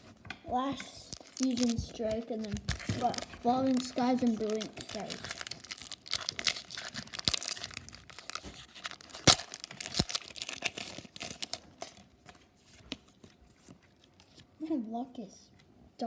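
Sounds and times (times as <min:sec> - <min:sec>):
foil wrapper crinkling: 0:01.0 - 0:13.2.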